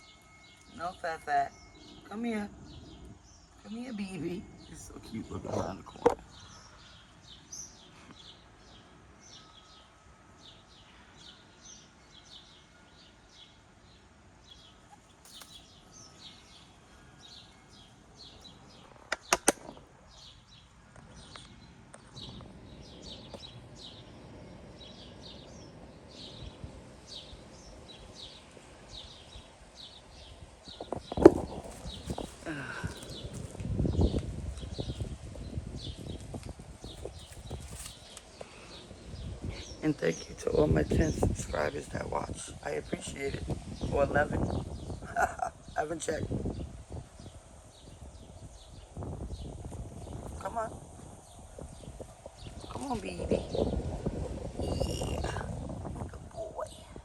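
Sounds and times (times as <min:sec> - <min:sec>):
small birds chirping: 0:00.0 - 0:57.0
sharp clicks: 0:19.1 - 0:19.8.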